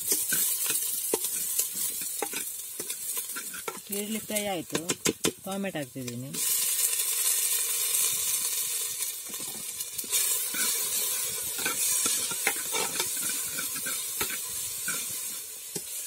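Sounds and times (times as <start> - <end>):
onion and tomato sizzling in oil: 0.0 - 16.0
wooden spoon scraping a pot: 0.1 - 5.0, 9.2 - 16.0.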